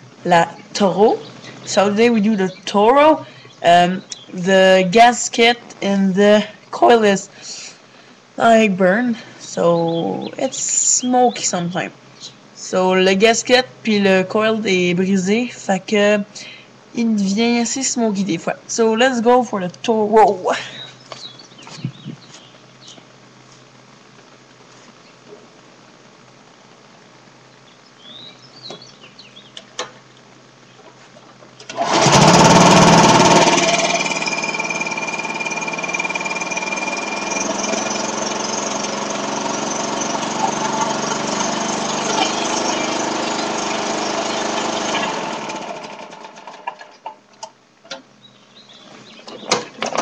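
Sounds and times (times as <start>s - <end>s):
small engine starting and running: 31.6s - 47.1s.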